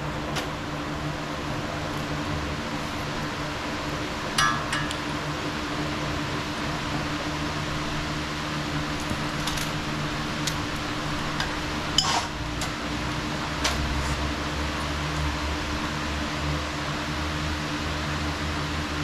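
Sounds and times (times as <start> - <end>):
light metal clinks: 4.4 - 5.1.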